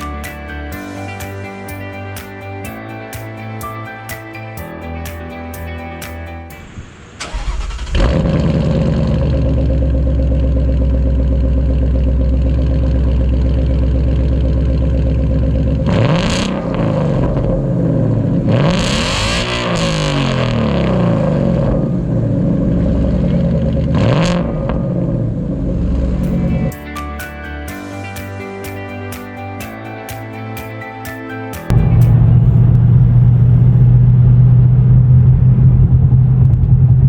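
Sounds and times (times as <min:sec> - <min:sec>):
car engine starting and idling: 0:06.5 - 0:26.9, 0:31.7 - 0:37.0
engine revving: 0:07.2 - 0:26.8, 0:31.7 - 0:37.0.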